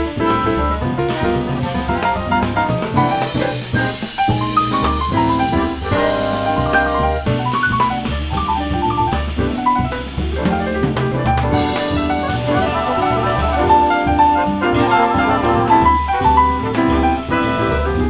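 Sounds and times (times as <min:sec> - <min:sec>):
drum kit keeping time: 0:00.0 - 0:18.0
jazz ensemble music: 0:00.0 - 0:18.0
brass instruments playing: 0:01.3 - 0:07.4, 0:11.5 - 0:18.0.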